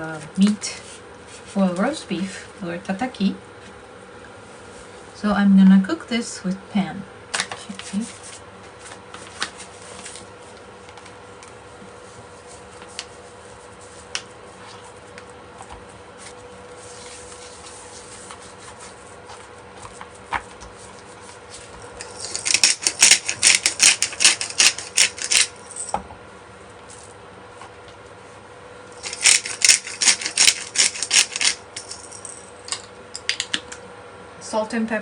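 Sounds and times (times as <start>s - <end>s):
pepper mill grinding: 21.8s - 26.0s, 29.0s - 33.7s.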